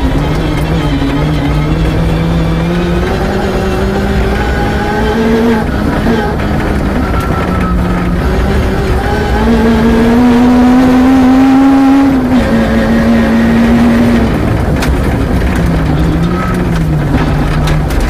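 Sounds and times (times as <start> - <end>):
car engine running hard: 0.0 - 18.0
gravel hitting car: 13.9 - 18.0.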